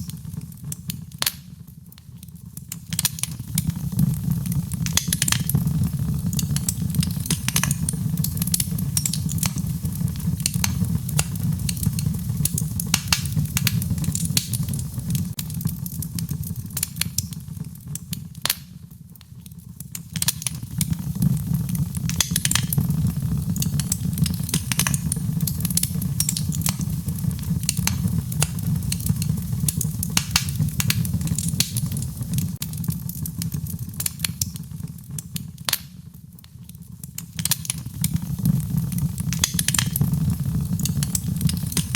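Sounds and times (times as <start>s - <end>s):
wood fire crackling and popping: 0.0s - 41.9s
rain: 37.4s - 41.9s.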